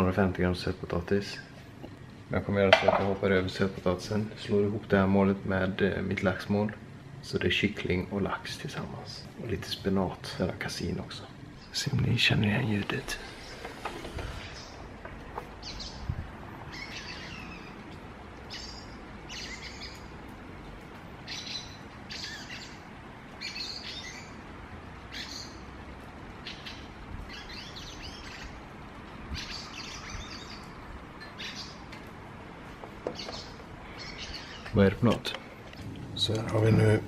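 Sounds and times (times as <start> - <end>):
bird chirping: 11.6 - 20.2, 21.2 - 24.4, 25.1 - 25.7, 26.4 - 32.0, 32.9 - 36.7.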